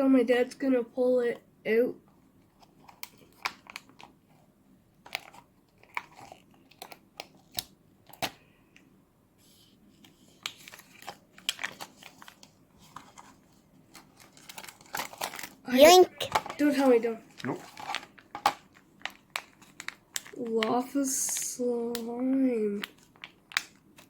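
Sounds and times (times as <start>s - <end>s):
plastic packaging crinkling: 14.0s - 15.6s, 17.4s - 20.6s.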